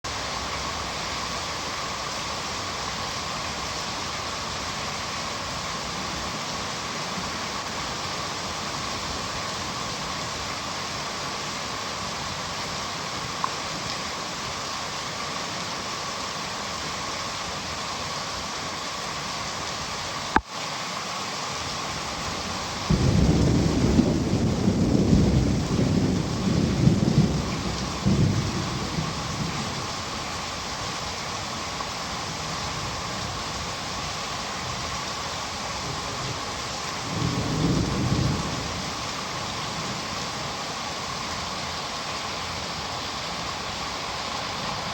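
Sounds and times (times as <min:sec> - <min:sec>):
heavy rain: 0:00.0 - 0:44.9
thunder rumbling: 0:22.8 - 0:30.0, 0:37.1 - 0:39.1.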